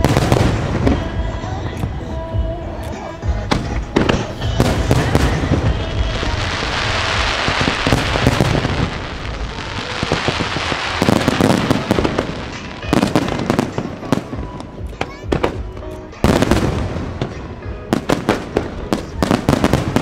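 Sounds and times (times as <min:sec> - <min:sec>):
fireworks hissing and crackling: 0:00.0 - 0:20.0
firework shell bursts and bangs: 0:10.0 - 0:20.0.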